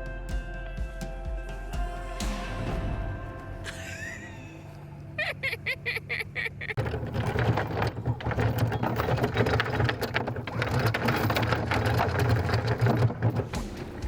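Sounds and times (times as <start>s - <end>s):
anchor chain clattering: 6.7s - 14.0s.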